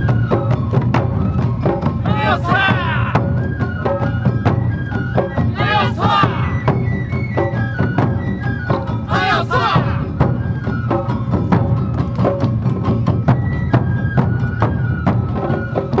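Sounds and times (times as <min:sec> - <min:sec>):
drums and bells: 0:00.0 - 0:16.0
flute melody: 0:00.0 - 0:16.0
group shouting chanted calls: 0:02.1 - 0:03.2, 0:05.5 - 0:06.6, 0:09.1 - 0:10.1.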